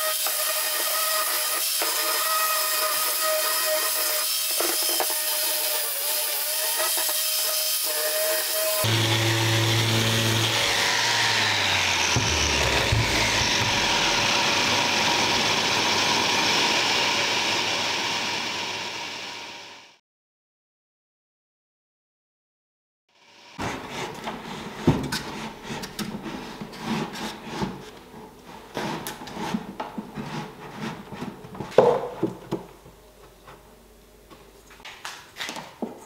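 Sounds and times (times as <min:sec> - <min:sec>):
power tool working wood: 0:00.0 - 0:19.9.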